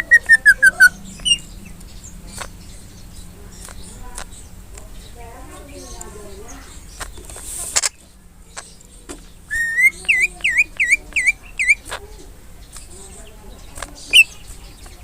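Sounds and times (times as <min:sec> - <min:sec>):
bird whistling song: 0:00.0 - 0:02.9, 0:09.4 - 0:11.9, 0:14.0 - 0:14.5.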